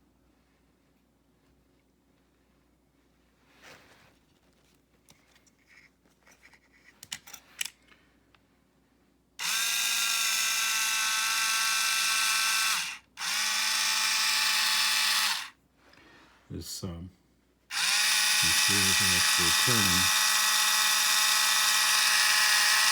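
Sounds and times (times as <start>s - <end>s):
toy car electric motor whirring: 9.4s - 15.6s, 17.7s - 22.9s.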